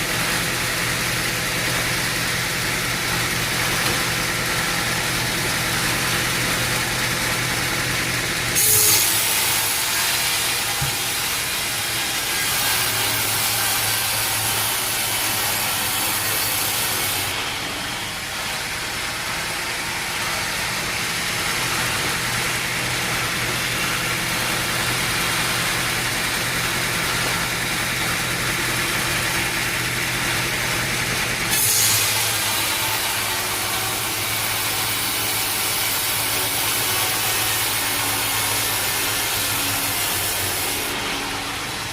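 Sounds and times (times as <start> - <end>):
hiss of sawing: 8.5 - 18.3, 31.5 - 41.9.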